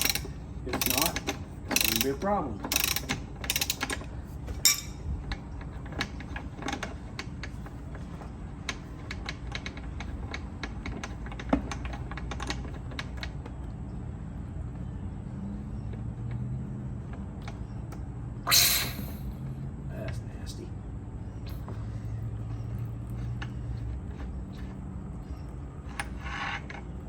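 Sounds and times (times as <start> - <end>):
hand tools clicking on metal: 0.0 - 4.0, 4.6 - 5.4
low background hum: 0.0 - 27.0.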